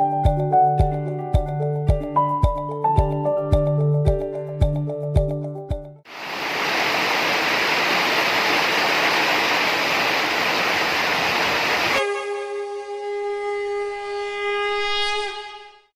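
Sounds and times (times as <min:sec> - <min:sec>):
steady rain falling: 0:06.1 - 0:12.0
long held wind instrument note: 0:12.0 - 0:14.6.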